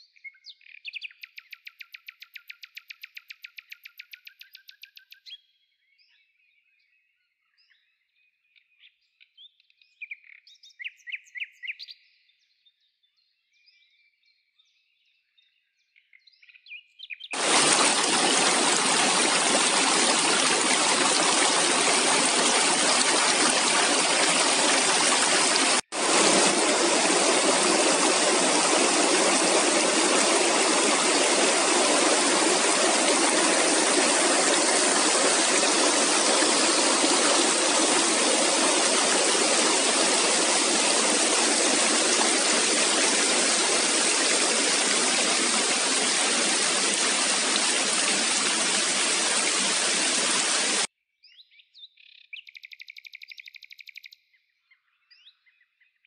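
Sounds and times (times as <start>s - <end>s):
river water rushing: 17.4s - 50.9s.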